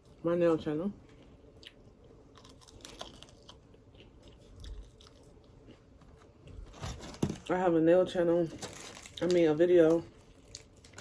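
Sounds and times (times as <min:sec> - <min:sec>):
person chewing crispy food: 0:01.1 - 0:06.0, 0:08.7 - 0:11.0.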